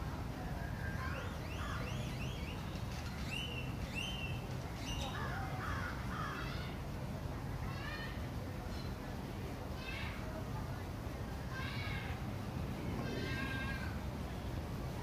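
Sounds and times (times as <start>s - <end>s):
birds chirping: 1.0s - 5.3s
steady low rumble: 12.1s - 15.0s.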